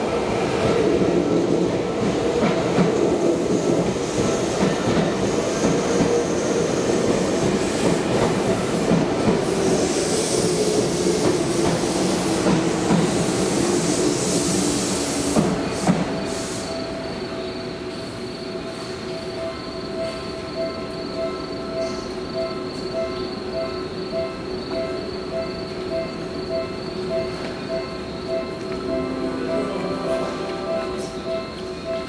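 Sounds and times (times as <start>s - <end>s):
train wheels clacking on rails: 0.5s - 16.8s.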